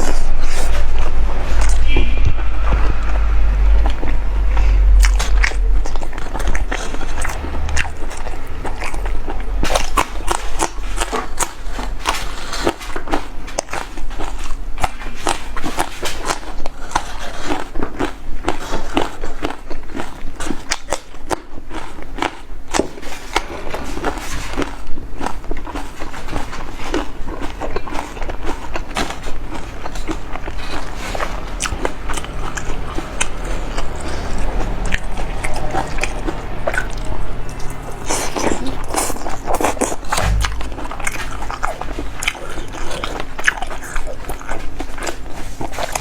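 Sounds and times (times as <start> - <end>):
low rumble: 0.0 - 11.2, 40.0 - 43.0
chewing and crunching food: 0.0 - 46.0.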